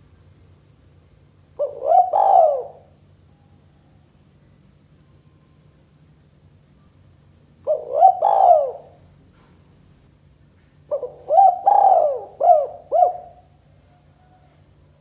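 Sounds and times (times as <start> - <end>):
dove cooing: 1.6 - 2.9, 7.6 - 9.0, 10.9 - 13.5.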